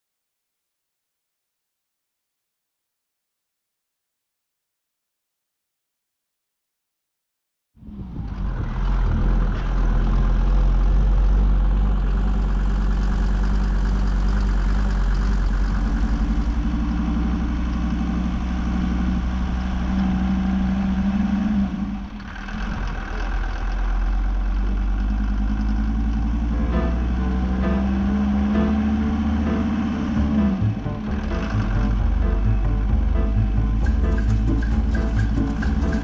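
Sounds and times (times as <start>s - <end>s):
engine running steadily: 7.8s - 36.0s.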